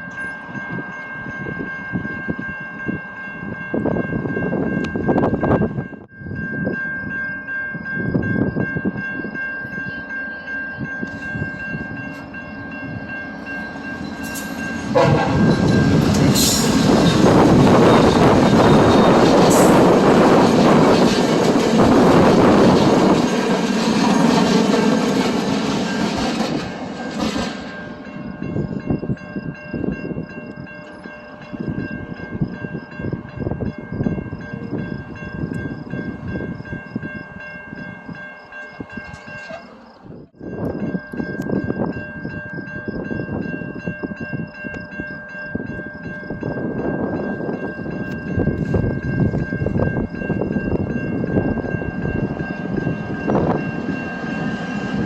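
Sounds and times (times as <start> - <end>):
high ringing tone: 0.0 - 20.4
train wheels clicking on rails: 11.0 - 29.2.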